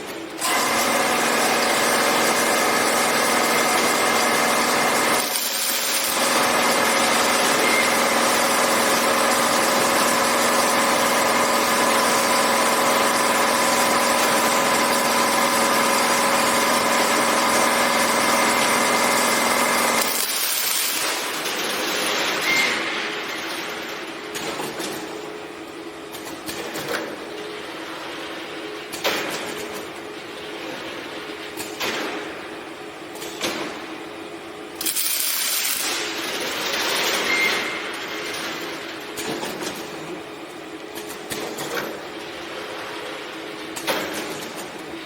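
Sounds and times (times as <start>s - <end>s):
welding machine humming: 0.0s - 24.9s, 34.6s - 45.0s.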